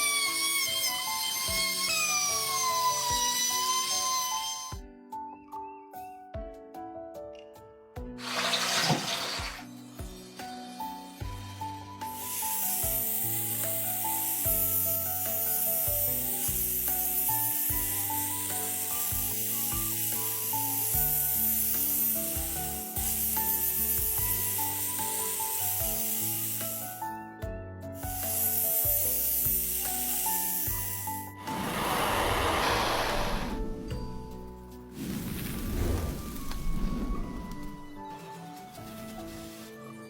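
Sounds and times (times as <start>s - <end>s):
steady hissing noise: 29.8s - 38.0s.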